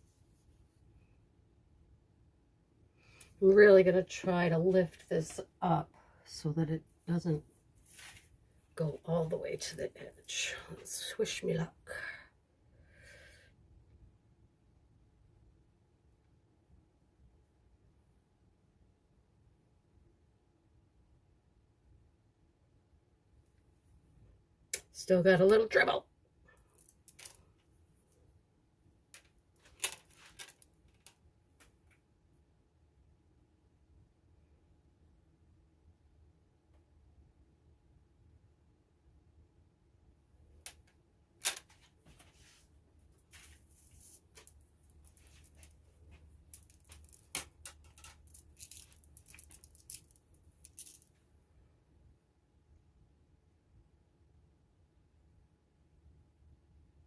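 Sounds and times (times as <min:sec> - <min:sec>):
faint steady hum: 0:00.0 - 0:57.0
small objects clicking: 0:26.7 - 0:27.4, 0:29.2 - 0:31.8, 0:46.5 - 0:51.2.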